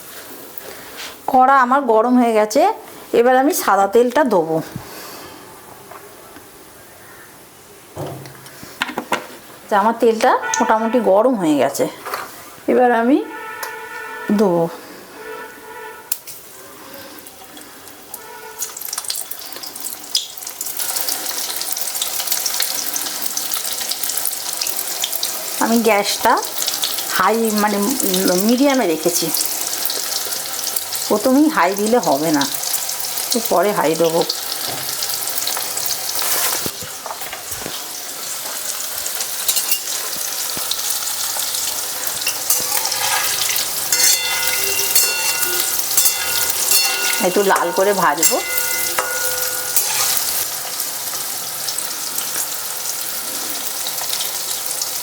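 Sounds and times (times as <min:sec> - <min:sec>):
food frying in hot oil: 0:16.2 - 0:55.0.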